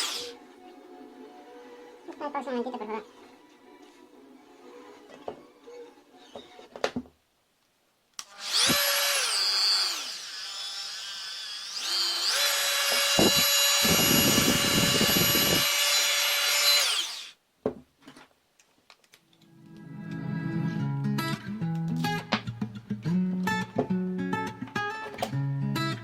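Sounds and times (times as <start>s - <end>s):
oscillating multi-tool whine: 0.0s - 0.4s, 8.2s - 17.4s.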